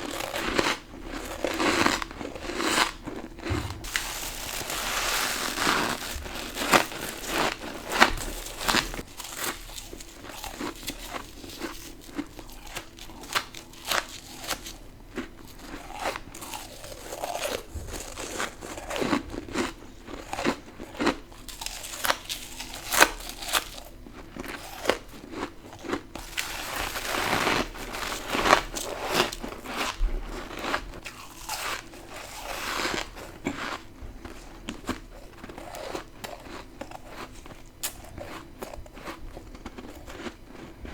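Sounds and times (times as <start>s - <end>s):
person chewing crunchy ice: 0.0s - 40.9s.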